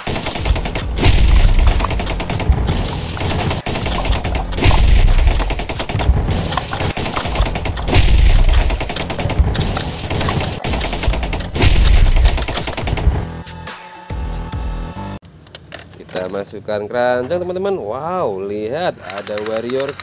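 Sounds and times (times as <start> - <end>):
toy blaster firing rapidly: 0.0 - 13.3.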